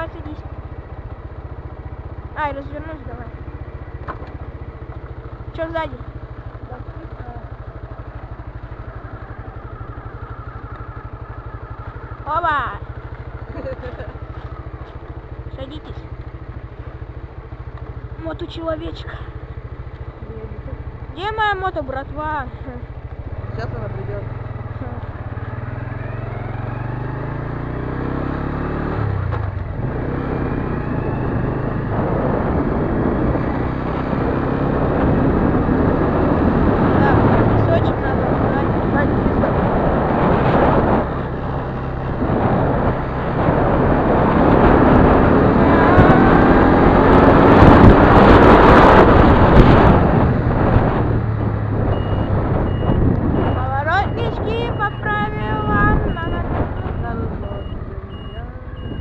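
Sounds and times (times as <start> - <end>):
motorcycle engine idling: 0.0 - 25.9, 52.9 - 59.0
wind noise on microphone: 29.0 - 59.0.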